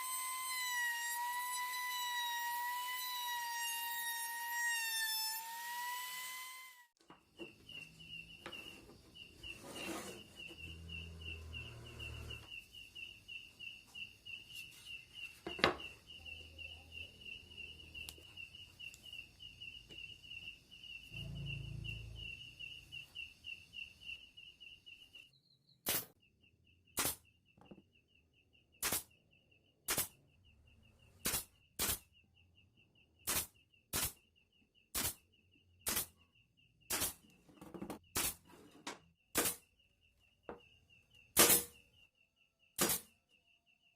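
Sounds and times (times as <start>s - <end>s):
knocks and handling noise: 14.5s - 16.0s, 37.4s - 39.1s.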